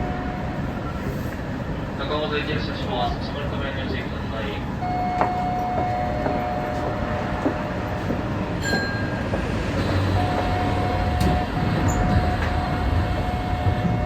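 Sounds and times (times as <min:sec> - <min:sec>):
train hum and rumble: 0:00.0 - 0:14.0
steady high tone: 0:04.8 - 0:09.2.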